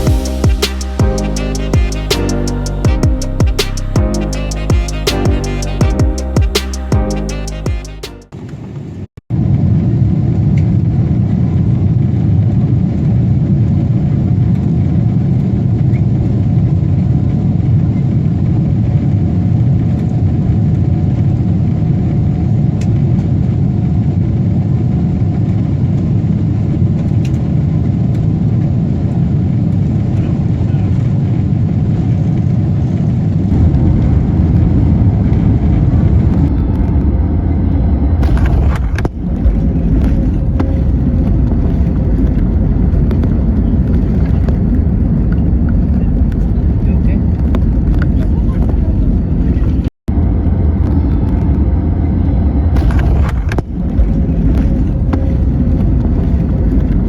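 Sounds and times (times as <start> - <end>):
low rumbling vehicle noise: 33.3 - 57.0.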